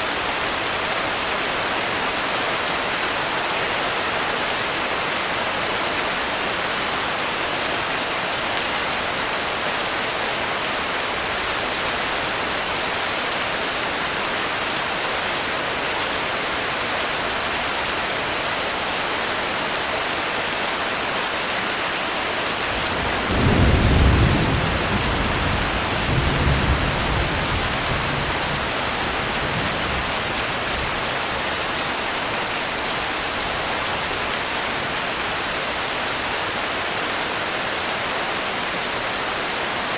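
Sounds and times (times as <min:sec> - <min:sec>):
steady rain: 0:00.0 - 0:39.9
low thunder rumble: 0:22.8 - 0:28.6.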